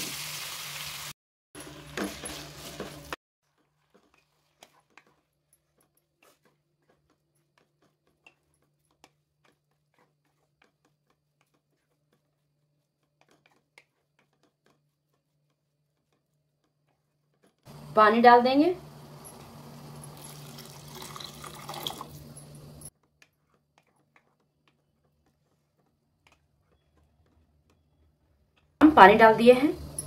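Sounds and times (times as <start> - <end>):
potato sizzling in hot oil: 0.0 - 1.1
wooden spatula scraping pan: 1.6 - 17.8.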